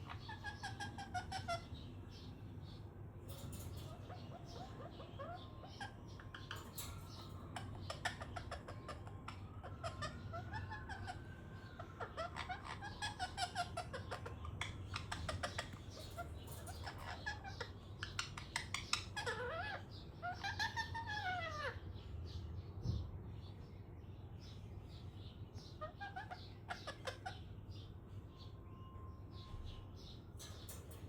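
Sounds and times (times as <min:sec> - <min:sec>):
parakeet chattering and squawking: 0:00.0 - 0:22.5, 0:25.0 - 0:31.0
parakeet whistled calls: 0:03.9 - 0:21.8.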